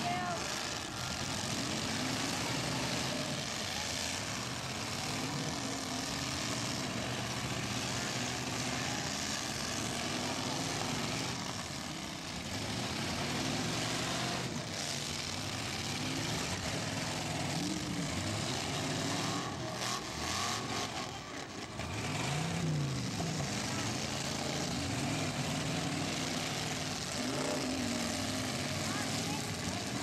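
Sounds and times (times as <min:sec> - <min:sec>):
car engines revving: 0:00.0 - 0:30.0.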